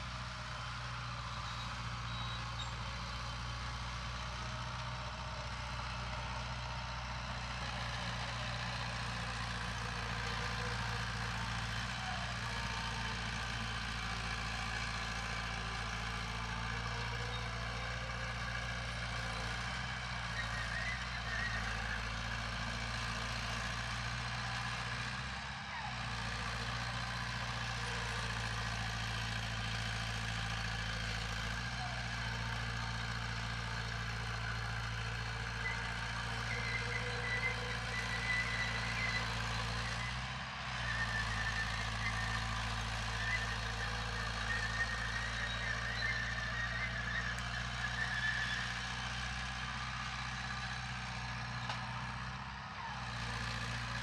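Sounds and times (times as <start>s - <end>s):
heavy diesel machinery running: 0.0s - 54.0s.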